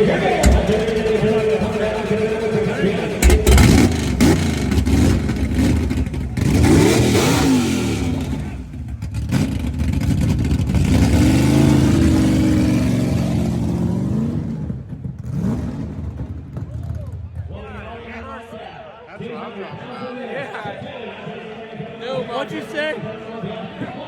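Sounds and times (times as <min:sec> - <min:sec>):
sharp engine crack: 0:00.0 - 0:09.7
engine revving: 0:00.0 - 0:16.3.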